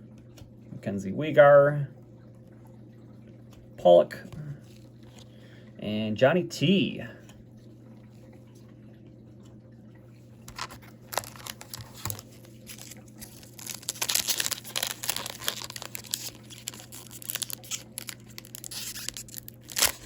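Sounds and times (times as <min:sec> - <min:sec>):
foil wrapper crinkling and tearing: 0:10.5 - 0:20.0.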